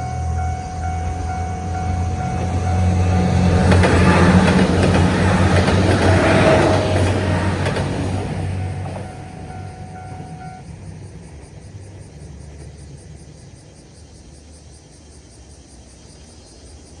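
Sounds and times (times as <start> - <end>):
level crossing warning bell: 0.0 - 10.6
train rumble: 0.0 - 14.9.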